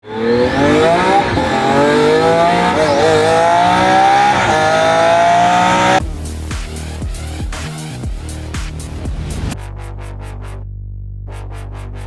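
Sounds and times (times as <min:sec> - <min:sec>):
sports car accelerating hard: 0:00.0 - 0:06.2.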